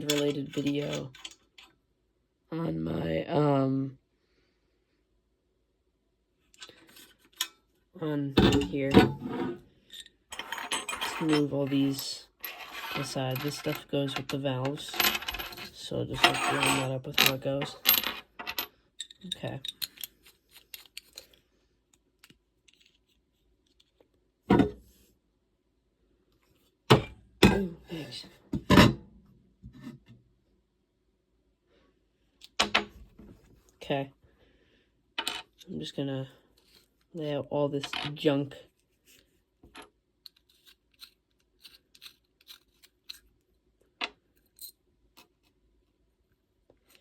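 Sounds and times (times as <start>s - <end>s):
metal parts clinking on hard surface: 0.0s - 1.8s, 9.8s - 21.4s, 39.6s - 43.3s.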